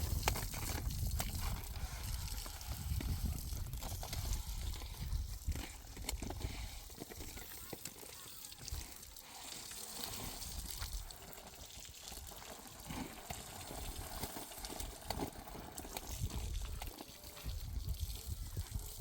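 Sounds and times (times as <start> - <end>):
running water: 0.0 - 19.0.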